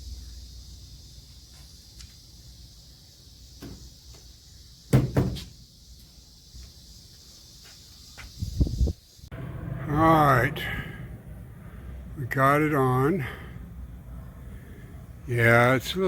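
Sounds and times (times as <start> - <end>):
loud clunks: 4.9 - 5.5.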